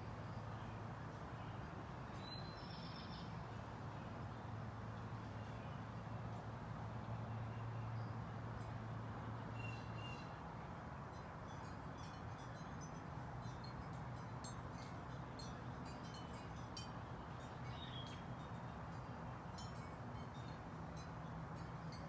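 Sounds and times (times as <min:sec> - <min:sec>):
songbirds chirping: 0:00.1 - 0:22.0.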